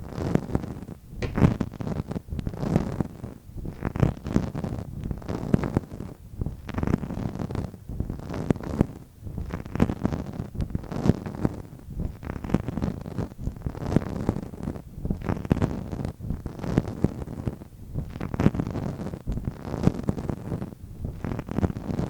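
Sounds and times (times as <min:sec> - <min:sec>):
soft low tapping: 0:01.2 - 0:01.8.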